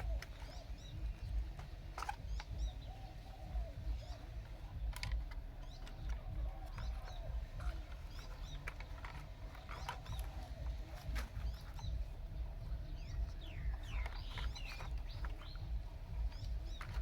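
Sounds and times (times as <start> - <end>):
small birds chirping: 0.0 - 17.0
steady low rumble: 0.0 - 17.0
sharp clicks: 3.7 - 12.0.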